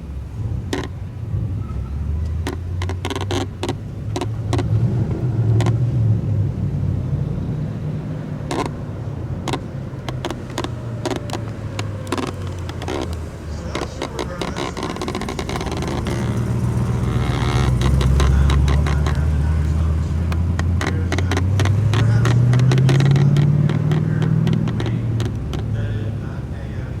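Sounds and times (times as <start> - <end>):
car engine idling: 0.0 - 27.0
sharp clicks or pops: 0.7 - 1.0, 2.2 - 5.8, 8.4 - 8.8, 9.4 - 25.8.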